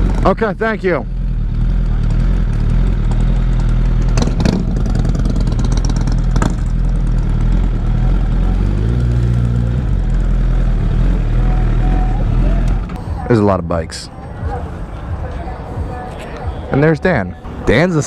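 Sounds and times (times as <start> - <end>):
motorcycle engine at low revs: 0.0 - 13.0.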